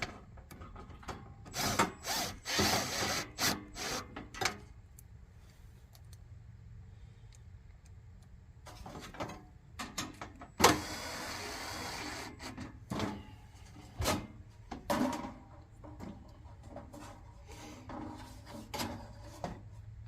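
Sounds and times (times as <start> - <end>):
heater parts knocking and clattering: 0.0 - 1.6, 8.6 - 10.6, 12.5 - 19.7.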